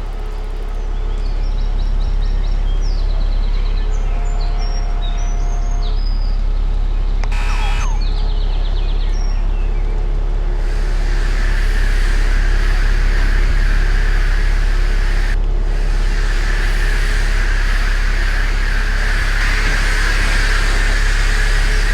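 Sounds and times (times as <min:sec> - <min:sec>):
low rumble: 0:00.0 - 0:21.9
birds chirping in trills: 0:00.8 - 0:21.9
steady hiss: 0:07.3 - 0:08.0, 0:10.6 - 0:21.9.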